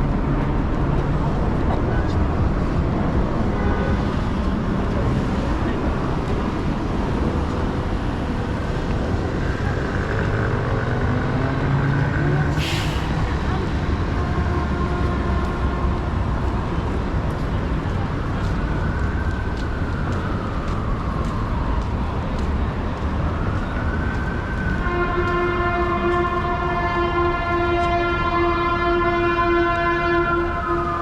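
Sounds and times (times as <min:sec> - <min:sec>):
city traffic rumble: 0:00.0 - 0:31.0
emergency vehicle siren wailing: 0:00.9 - 0:31.0
steady air horn: 0:24.8 - 0:30.8.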